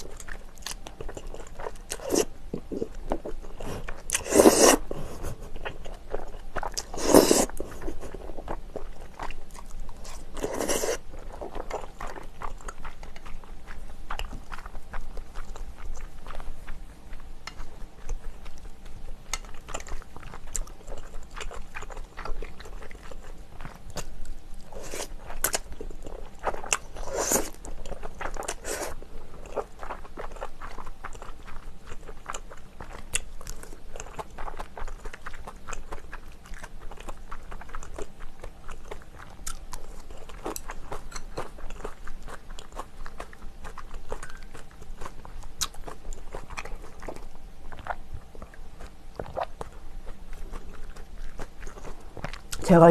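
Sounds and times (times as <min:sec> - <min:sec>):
wet chewing and crunchy bites: 0:00.0 - 0:52.9.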